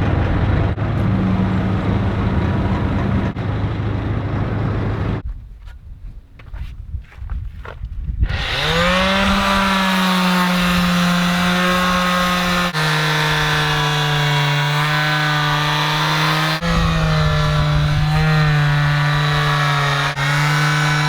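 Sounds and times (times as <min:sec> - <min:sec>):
power sander motor humming: 0:08.2 - 0:21.0.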